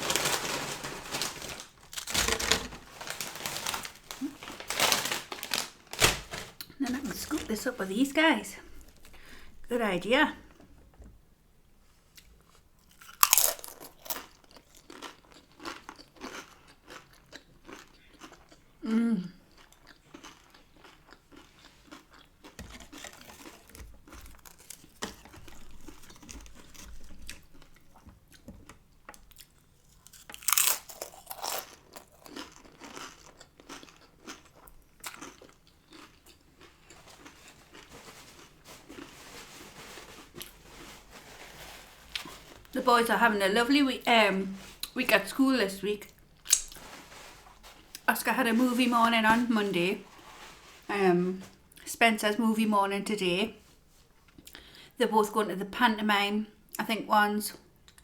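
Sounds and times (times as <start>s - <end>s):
crunching bites of tortilla chips: 0.0s - 7.4s, 12.4s - 42.8s, 46.0s - 48.1s
crackly chewing: 12.1s - 18.8s, 19.4s - 42.8s, 44.0s - 48.5s.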